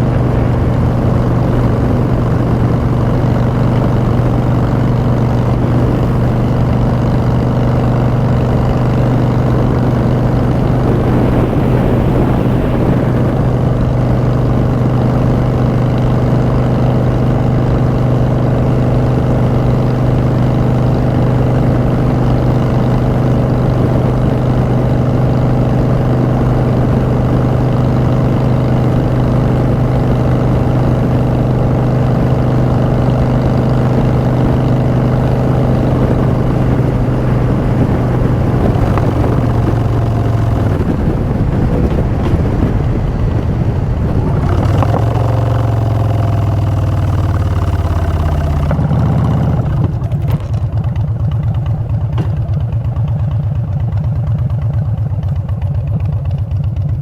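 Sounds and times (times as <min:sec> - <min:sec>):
rush of noise: 0:00.0 - 0:16.6
motorcycle engine cruising: 0:00.0 - 0:57.0.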